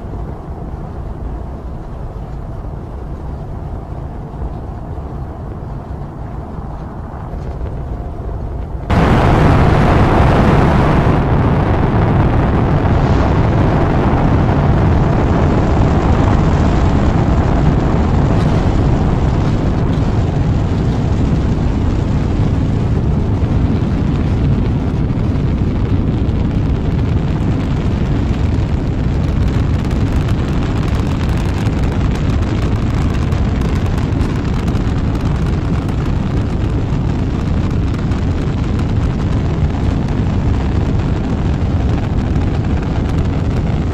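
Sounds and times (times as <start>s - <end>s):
rocket engines rumbling: 0.0s - 43.9s.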